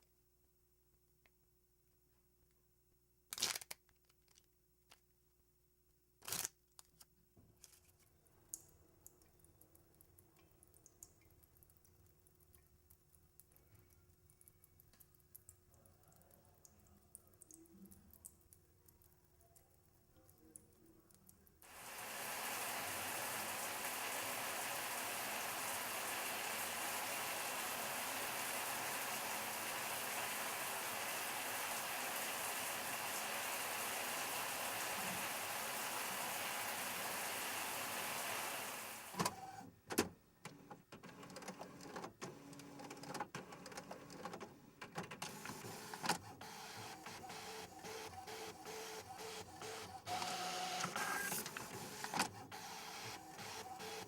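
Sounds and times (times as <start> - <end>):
small machine whirring: 21.6 - 39.6, 45.2 - 54.0.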